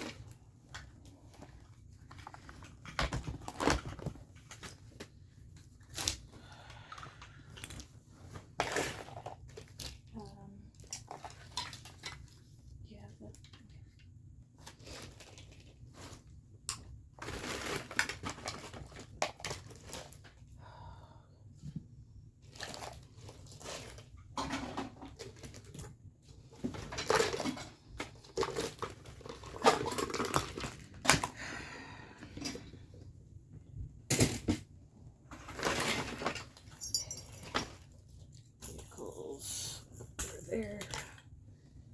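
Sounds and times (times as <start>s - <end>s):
items knocking and clattering: 0.0s - 6.1s, 21.6s - 31.4s, 33.8s - 38.9s
rustling and crinkling: 0.0s - 20.5s, 21.6s - 31.4s, 32.3s - 39.1s.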